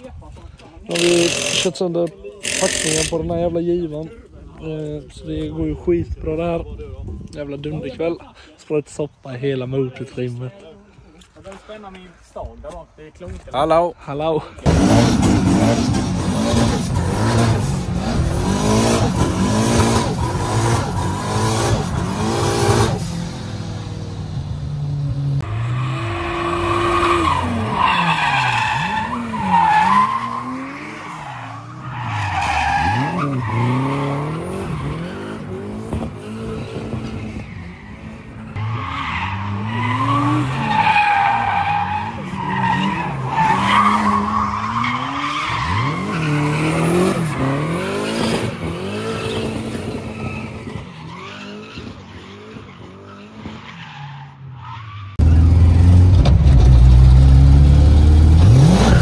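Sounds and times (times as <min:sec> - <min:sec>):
car engine revving: 0:14.7 - 0:50.6, 0:55.1 - 0:59.0.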